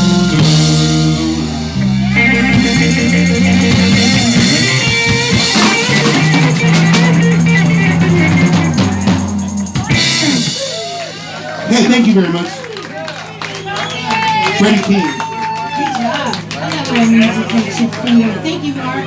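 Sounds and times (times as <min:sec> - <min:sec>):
live rock band playing: 0:00.0 - 0:12.6.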